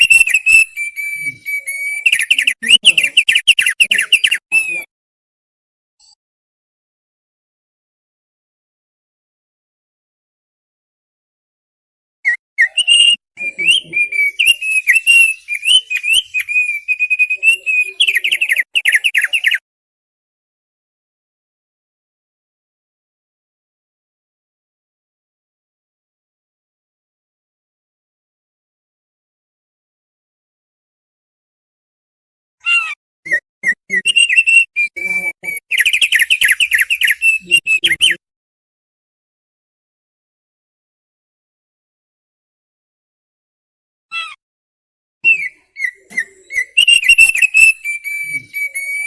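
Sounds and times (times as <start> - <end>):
bird singing chattering song: 0.0 - 4.9, 12.3 - 19.6, 32.7 - 38.2, 45.3 - 49.0.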